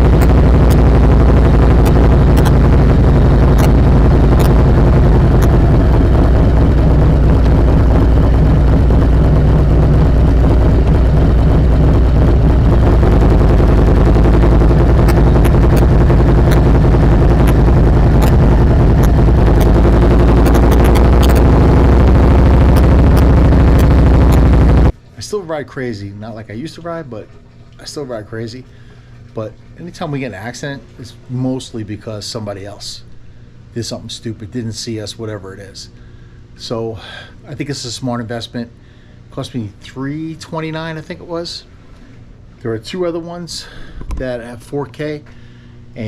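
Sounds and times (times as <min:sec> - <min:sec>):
motorcycle engine running: 0:00.0 - 0:24.9.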